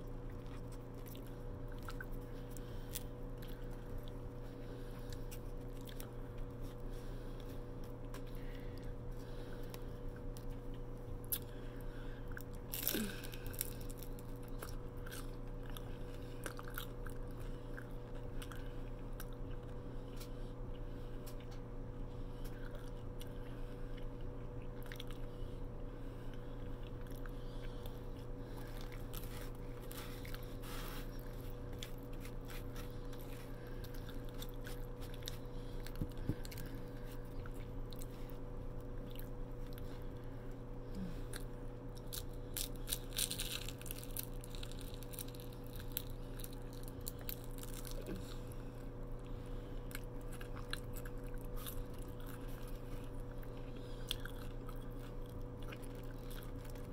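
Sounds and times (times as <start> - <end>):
crunchy chewing: 0.0 - 56.9
steady low hum: 0.0 - 56.9.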